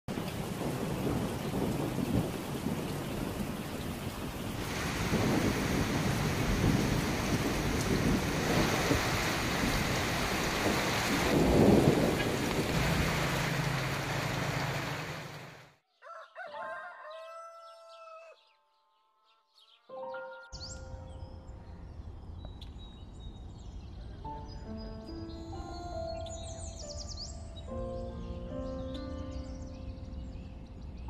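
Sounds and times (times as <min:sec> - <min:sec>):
thunder rumbling: 0:00.1 - 0:15.6
heavy rain: 0:00.1 - 0:15.8
rooster crowing: 0:15.9 - 0:18.5
music: 0:19.9 - 0:21.6, 0:24.1 - 0:31.0.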